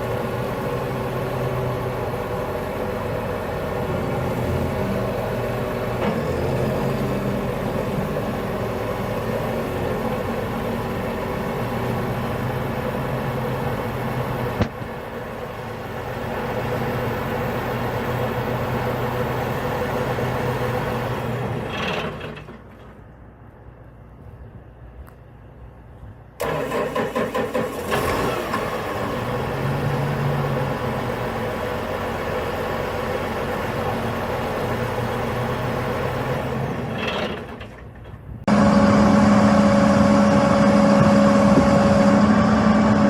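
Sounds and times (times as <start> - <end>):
large diesel engine running: 0.0 - 43.0.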